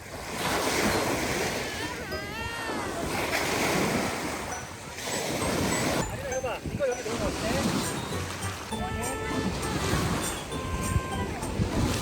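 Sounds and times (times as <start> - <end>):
waves breaking on beach: 0.0 - 12.0
wind: 0.0 - 12.0
child calling out: 1.6 - 3.0, 10.4 - 11.6.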